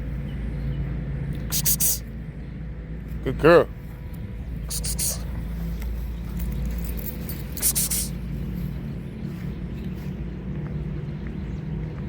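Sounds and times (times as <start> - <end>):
low background rumble: 0.0 - 12.0
hissing rustle: 4.7 - 6.6, 7.2 - 8.2.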